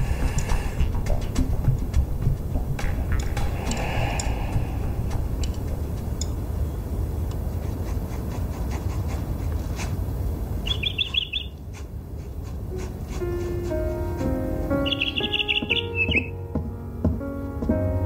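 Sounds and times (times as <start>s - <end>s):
steady low rumble: 0.0s - 10.7s
small bird chirping: 10.6s - 11.6s, 14.7s - 16.4s.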